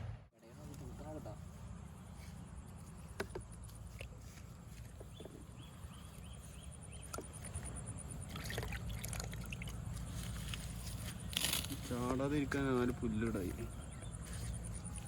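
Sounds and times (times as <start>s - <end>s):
water trickling and sloshing: 7.0s - 10.8s.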